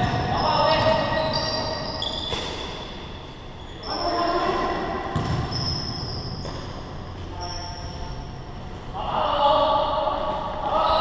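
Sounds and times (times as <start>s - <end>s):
basketball bouncing: 0.0s - 1.3s, 5.1s - 6.7s
sneakers squeaking: 0.0s - 8.9s.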